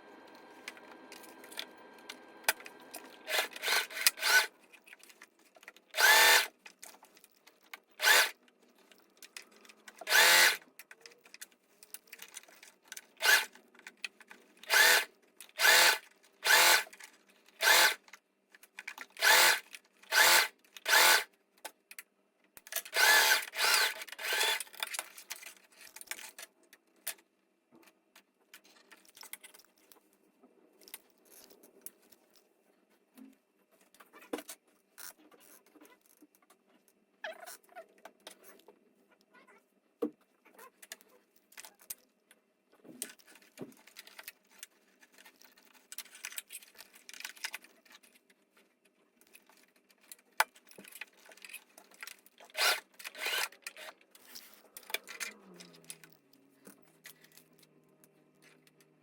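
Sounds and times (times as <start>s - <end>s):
handling clicks and rustling: 0.3s - 39.0s, 40.1s - 59.0s
sewing machine stitching: 2.5s - 4.5s, 8.0s - 8.4s, 22.9s - 24.7s, 52.5s - 54.0s.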